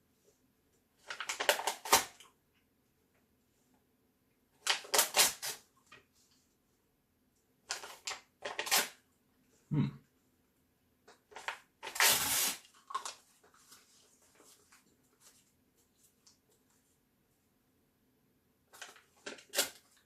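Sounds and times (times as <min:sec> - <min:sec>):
paper being eaten crackling: 0:18.8 - 0:20.0.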